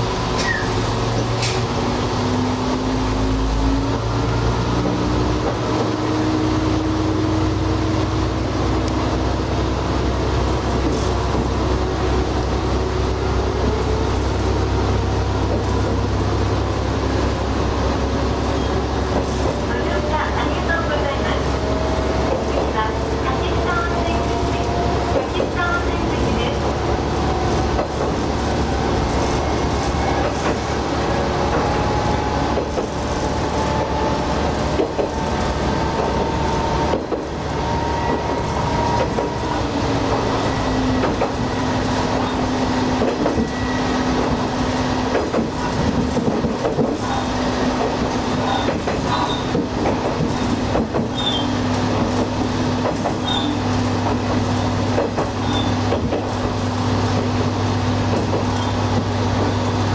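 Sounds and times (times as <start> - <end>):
diesel railcar engine: 0.0 - 59.9
wheels on rails: 18.2 - 59.8.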